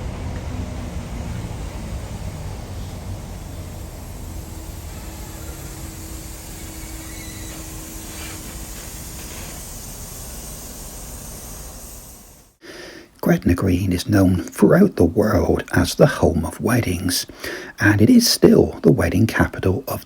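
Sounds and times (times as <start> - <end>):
vehicle running: 0.0 - 12.5.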